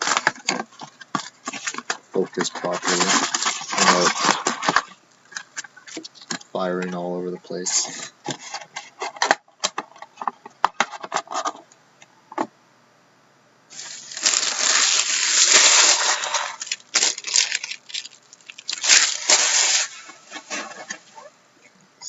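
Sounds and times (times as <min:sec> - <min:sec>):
packaging crinkling rip: 0:00.0 - 0:05.0, 0:13.8 - 0:21.0
cards and boxes clicking: 0:00.0 - 0:07.0.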